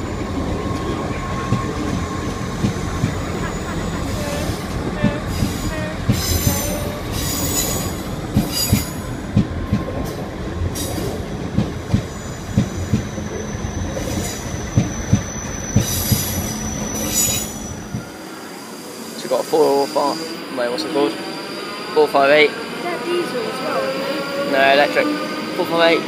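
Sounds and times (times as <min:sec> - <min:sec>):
train wheels knocking over rail joints: 0:04.4 - 0:13.2, 0:14.0 - 0:18.1
high-pitched wheel squeal: 0:12.1 - 0:18.7.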